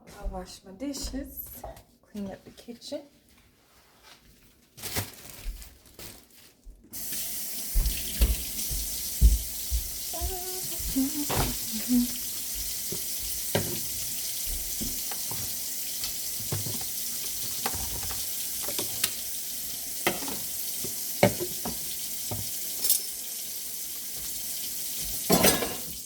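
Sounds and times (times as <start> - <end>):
tap running into a sink: 7.0 - 19.3, 20.0 - 23.0
dishes clinking: 25.3 - 26.0.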